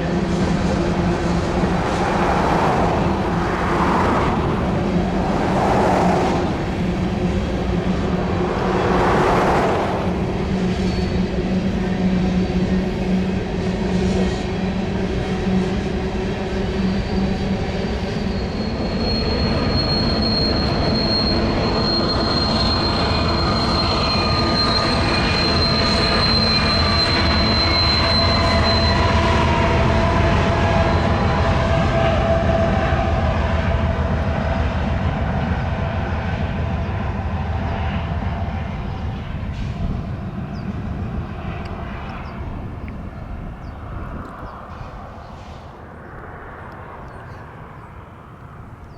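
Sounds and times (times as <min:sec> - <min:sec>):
diesel engine drone: 0:00.0 - 0:48.9
train wheels rumbling on rail: 0:00.0 - 0:48.9
steel wheel squeal: 0:16.5 - 0:32.2.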